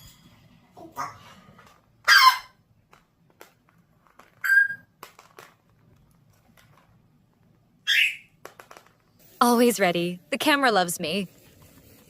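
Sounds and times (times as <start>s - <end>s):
parrot squeaky calls: 2.1s - 2.5s, 4.4s - 4.9s, 7.8s - 8.3s.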